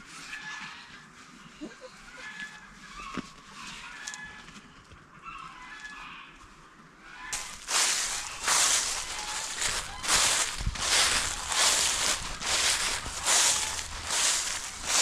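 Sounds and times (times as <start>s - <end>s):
chickens chirping and clucking: 7.3s - 15.0s.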